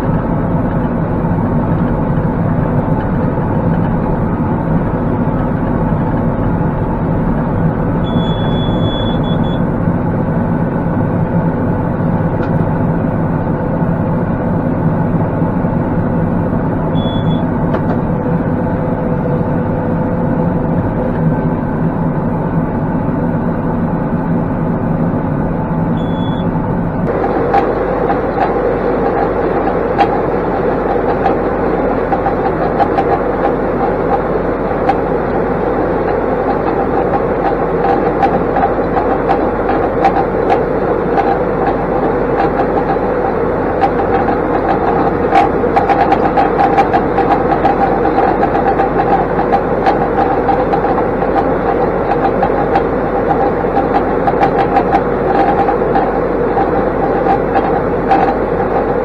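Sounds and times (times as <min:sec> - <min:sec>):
tractor diesel engine running: 0:00.0 - 0:59.0
light rattling and ticking: 0:27.0 - 0:59.0.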